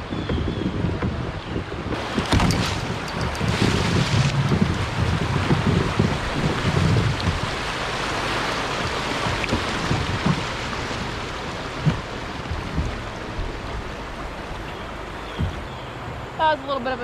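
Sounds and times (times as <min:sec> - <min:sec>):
wind buffeting microphone: 0:00.0 - 0:17.0
creek water rushing: 0:01.9 - 0:17.0
soft knocks: 0:11.8 - 0:13.6, 0:15.3 - 0:15.7.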